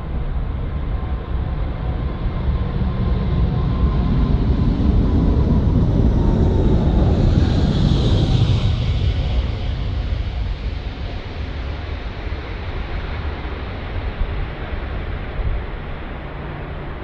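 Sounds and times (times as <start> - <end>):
aircraft engine rumble: 0.0 - 17.0.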